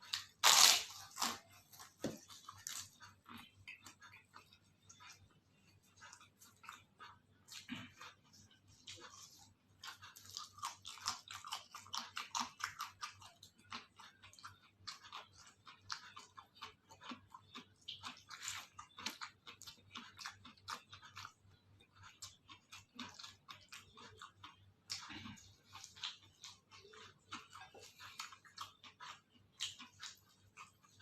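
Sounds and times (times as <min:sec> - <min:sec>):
person chewing crunchy food: 0:00.0 - 0:31.0.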